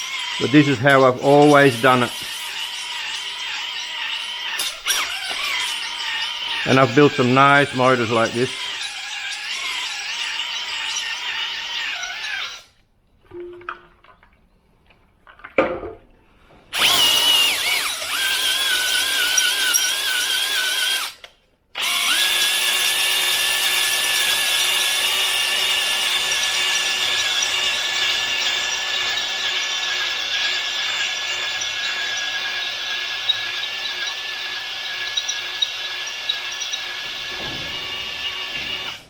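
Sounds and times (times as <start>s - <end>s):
cylinder hone squealing: 0.0s - 12.5s, 24.2s - 39.0s
clunk: 36.5s - 39.0s.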